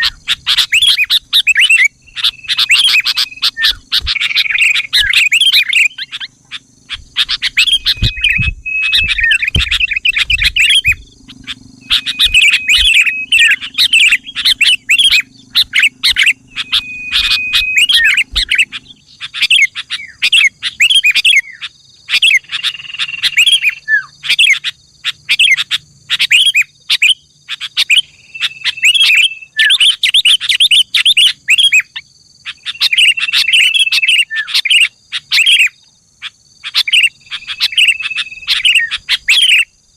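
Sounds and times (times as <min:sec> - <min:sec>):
bird chirping and whistling: 0:00.0 - 0:39.7
low thumps: 0:07.0 - 0:13.0.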